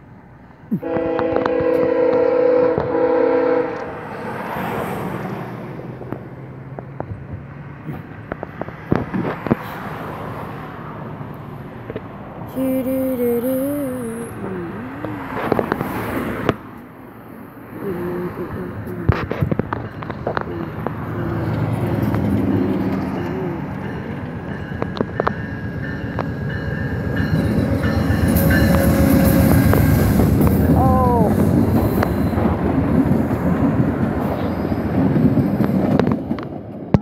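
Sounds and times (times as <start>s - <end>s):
train rumble and wheel clatter: 0.0s - 37.0s
train horn chord: 0.8s - 4.0s, 27.5s - 30.3s.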